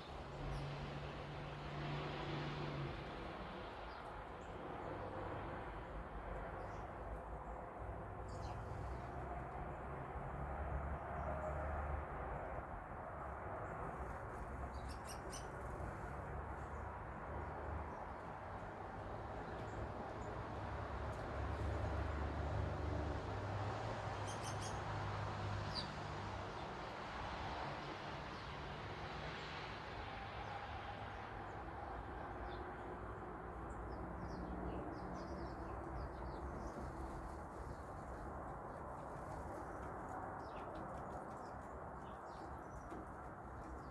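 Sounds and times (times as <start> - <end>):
small songbirds chirping: 0.0 - 1.5, 5.7 - 10.0, 13.6 - 22.4, 23.2 - 29.7, 31.2 - 43.9.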